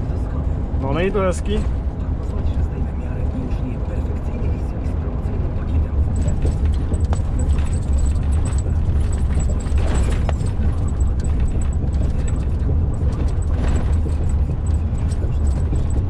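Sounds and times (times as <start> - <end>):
truck engine and tyres rumbling: 0.0 - 16.0
sharp knocks and rattles: 6.1 - 16.0.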